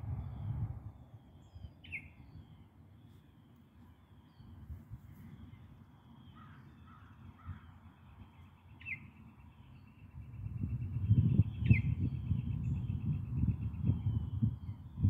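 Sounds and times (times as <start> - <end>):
low rumble on microphone: 0.0 - 2.7, 10.2 - 15.0
harsh caw-like bird calls: 6.2 - 7.8.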